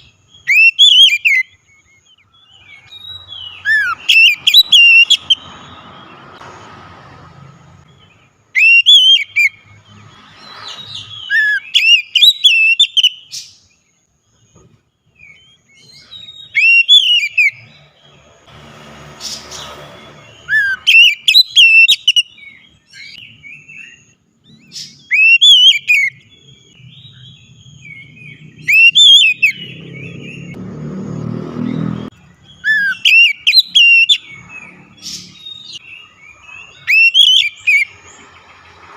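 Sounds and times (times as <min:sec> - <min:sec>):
bird singing whistled phrases: 0:00.0 - 0:05.8, 0:08.5 - 0:09.7, 0:10.8 - 0:13.7, 0:15.2 - 0:17.6, 0:20.4 - 0:30.5, 0:32.5 - 0:34.5, 0:35.4 - 0:37.9.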